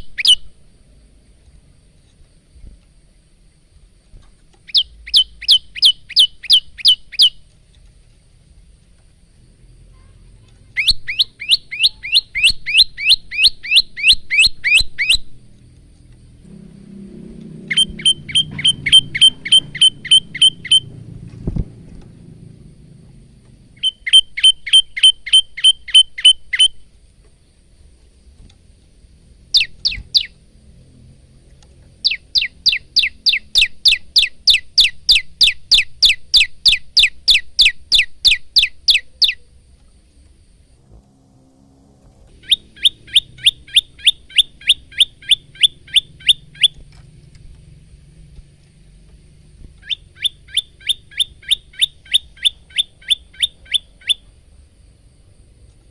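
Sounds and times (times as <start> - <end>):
bird rapid sharp chirps: 0.0 - 0.5, 4.6 - 7.4, 10.7 - 15.3, 17.6 - 21.1, 23.8 - 26.8, 29.5 - 30.4, 32.0 - 39.4, 42.3 - 46.8, 49.8 - 54.2.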